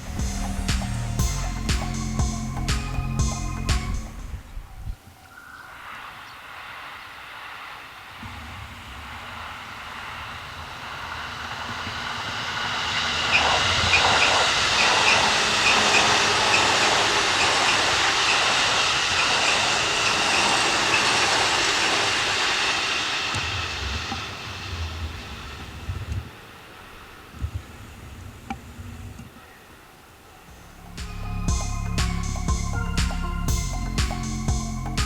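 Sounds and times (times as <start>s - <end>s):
electric train passing: 0.0s - 27.8s, 30.0s - 35.0s
wheels clicking on rails: 10.8s - 26.8s.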